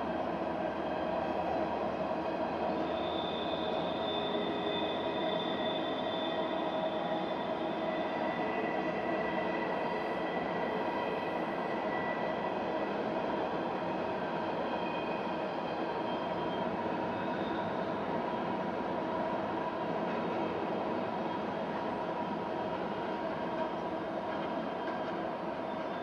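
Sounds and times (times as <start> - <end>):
rumble of train wheels on rail: 0.0 - 26.0
thin squealing wheel tones: 2.7 - 9.0, 24.3 - 26.0.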